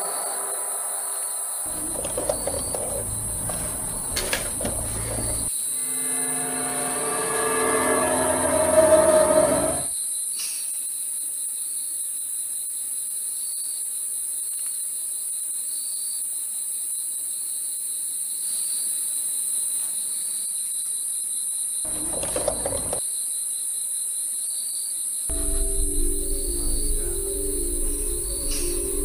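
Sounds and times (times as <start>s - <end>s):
crickets trilling: 0.0s - 29.0s
loud noise: 1.7s - 9.9s
pulsing chirp: 25.3s - 29.0s.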